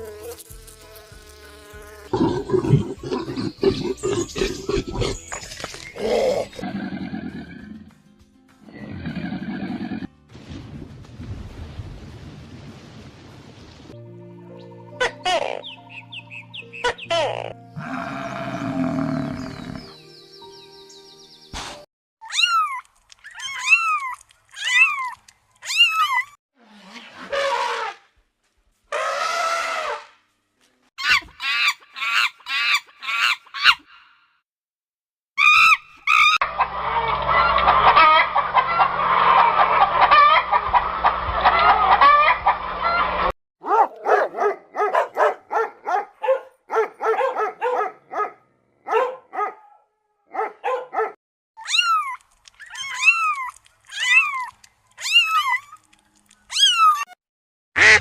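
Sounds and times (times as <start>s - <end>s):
fowl clucking and honking: 36.4s - 43.3s.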